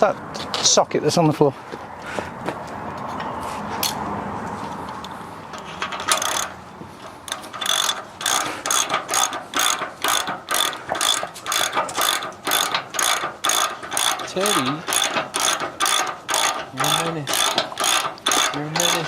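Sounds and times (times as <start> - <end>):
ratchet wrench clicking: 5.6 - 6.6, 7.3 - 19.0.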